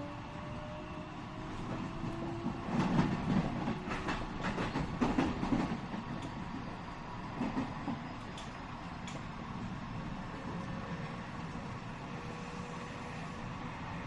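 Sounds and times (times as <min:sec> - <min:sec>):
train rumble: 0:00.0 - 0:14.0
train wheels clacking over joints: 0:01.7 - 0:06.7.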